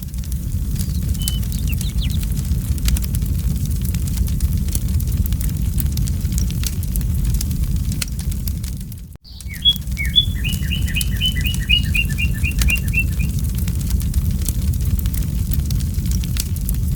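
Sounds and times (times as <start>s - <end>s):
campfire crackling: 0.1s - 16.9s
songbird singing repeated notes: 0.7s - 2.3s, 9.2s - 13.4s.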